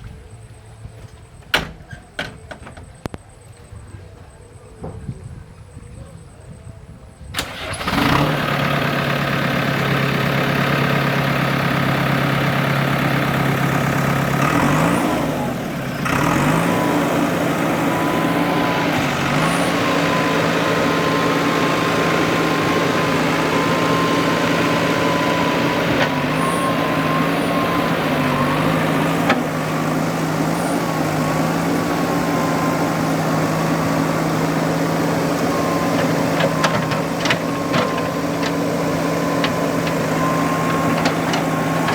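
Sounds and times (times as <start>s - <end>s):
diesel engine running: 7.4s - 41.9s.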